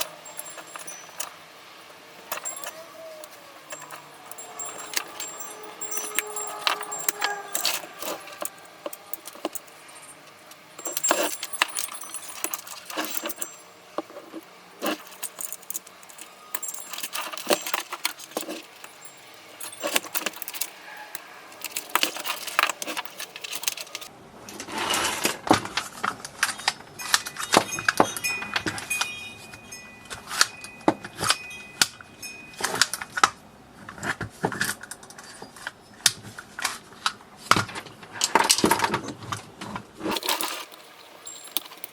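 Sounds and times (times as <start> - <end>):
clicks and clinks of small parts: 0.0 - 24.1, 38.2 - 41.9.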